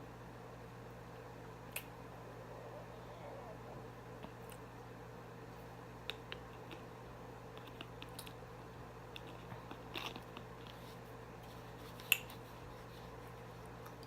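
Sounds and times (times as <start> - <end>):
low hum: 0.9 - 6.0
chewing with clicks and crunches: 7.5 - 8.4, 9.1 - 10.8.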